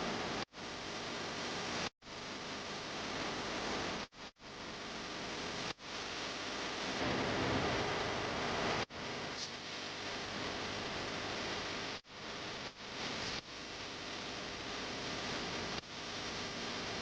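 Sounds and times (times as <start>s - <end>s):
steady hiss: 7.0s - 17.0s.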